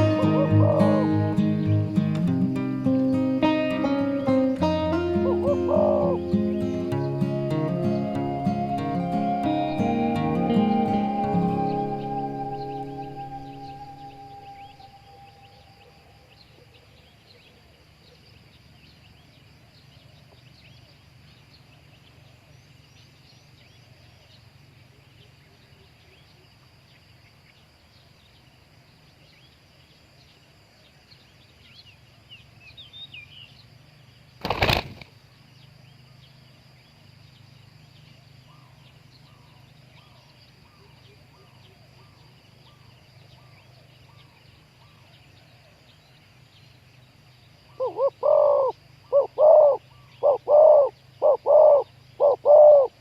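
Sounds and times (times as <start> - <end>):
dove cooing: 0.0 - 14.9, 47.7 - 53.0
small birds chirping: 0.0 - 15.6, 16.3 - 53.0
wings flapping: 34.4 - 35.1.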